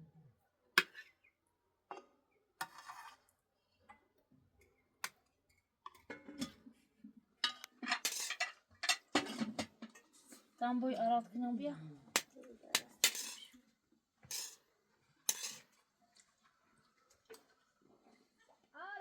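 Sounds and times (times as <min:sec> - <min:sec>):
dishes clinking and clattering: 0:05.9 - 0:06.6, 0:07.4 - 0:10.3, 0:14.3 - 0:14.6, 0:15.3 - 0:15.8.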